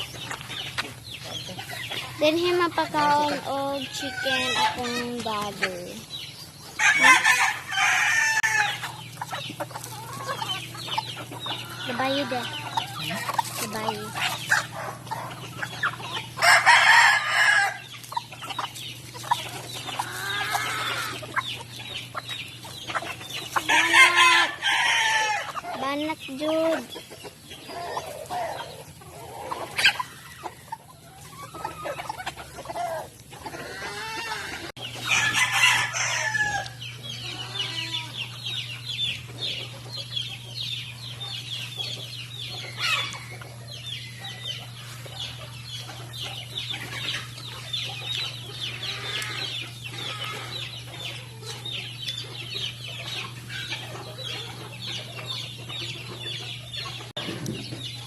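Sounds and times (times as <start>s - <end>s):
chickens clucking: 0.0s - 58.0s
rooster crowing: 6.8s - 8.8s, 16.4s - 17.8s, 33.8s - 36.8s.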